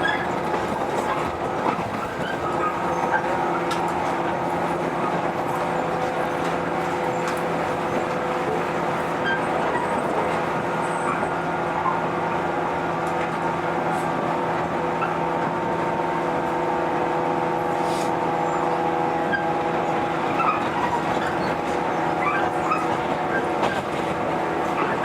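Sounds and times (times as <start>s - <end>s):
electric train running: 0.0s - 25.0s.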